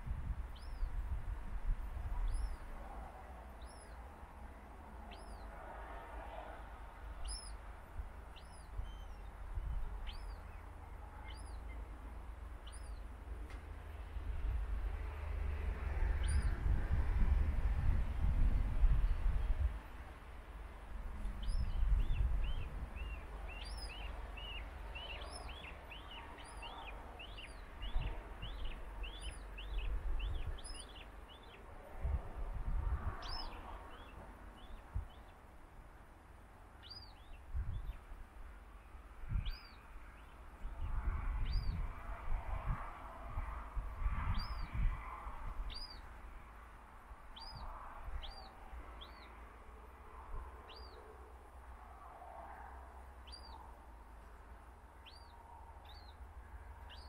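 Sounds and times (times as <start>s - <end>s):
bird chirping: 0.5s - 1.0s, 2.1s - 2.8s, 3.5s - 4.3s, 5.0s - 5.6s, 7.2s - 7.6s, 8.3s - 12.0s, 12.6s - 13.1s, 16.1s - 16.6s, 21.2s - 31.6s, 33.2s - 35.4s, 36.8s - 38.0s, 39.3s - 41.8s, 44.2s - 44.8s, 45.7s - 46.1s, 47.3s - 49.4s, 50.7s - 51.1s, 53.2s - 53.6s, 55.0s - 56.2s.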